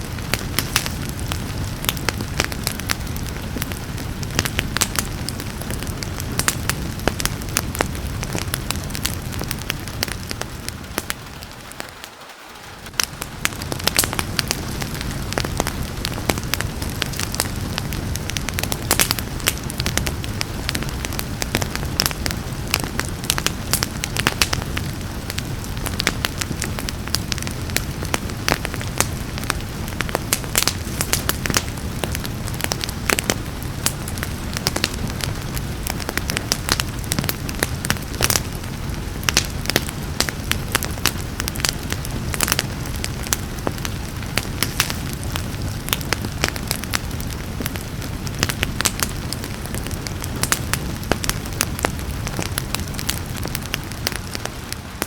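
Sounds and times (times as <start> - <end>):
low rumble of flames: 0.0 - 55.0
rain hissing: 0.0 - 55.0
wood fire crackling and popping: 0.0 - 55.0.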